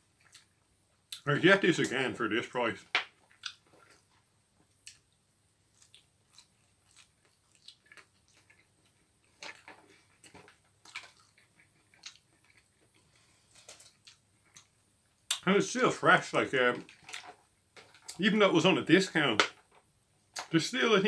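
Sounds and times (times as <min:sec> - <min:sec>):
person chewing: 0:00.1 - 0:00.5, 0:03.2 - 0:15.4.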